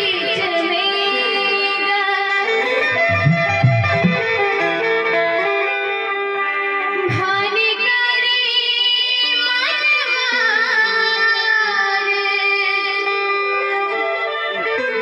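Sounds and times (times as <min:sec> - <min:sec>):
woman singing devotional song: 0:00.0 - 0:03.0, 0:04.5 - 0:13.7
sustained instrumental accompaniment: 0:02.3 - 0:07.6.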